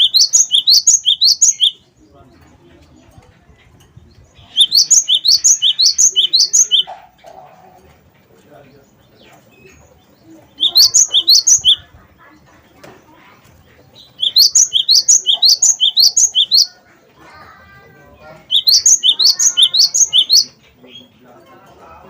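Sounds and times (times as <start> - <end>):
bird singing rising notes: 0.0 - 1.8, 4.2 - 6.9, 10.5 - 11.9, 14.0 - 16.7, 18.4 - 20.6
soft bird twittering: 0.0 - 7.8, 8.5 - 12.1, 12.7 - 16.9, 18.0 - 21.3.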